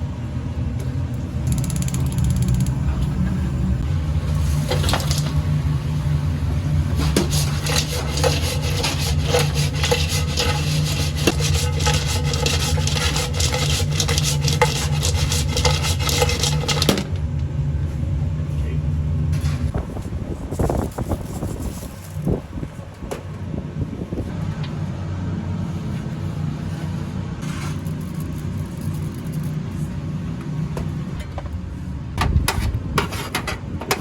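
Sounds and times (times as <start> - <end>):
low machine hum: 0.0 - 34.0
scraping and clattering in metal cookware: 7.0 - 17.2, 32.5 - 34.0.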